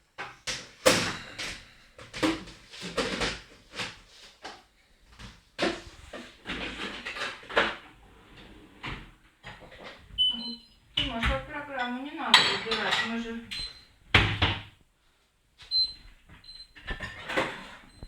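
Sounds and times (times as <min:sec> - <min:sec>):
dishwasher knocks and clatters: 0:00.6 - 0:04.0, 0:12.3 - 0:13.2, 0:14.1 - 0:14.7.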